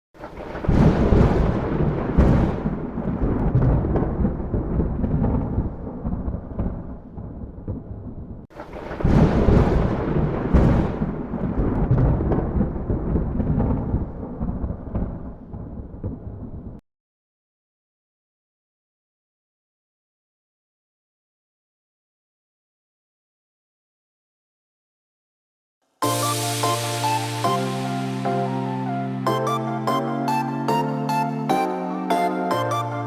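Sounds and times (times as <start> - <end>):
thunder cracking and rumbling: 0.2 - 16.8.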